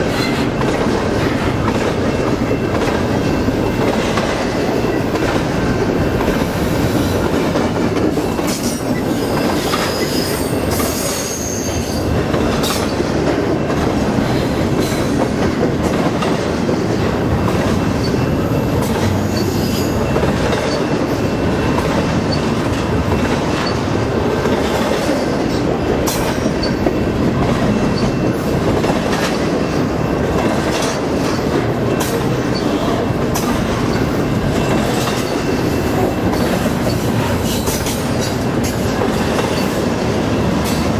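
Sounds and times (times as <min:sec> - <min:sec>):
train wheels rumbling on rails: 0:00.0 - 0:40.9
wheels clicking over rail joints: 0:00.0 - 0:40.9
high-pitched wheel squeal: 0:09.2 - 0:12.0.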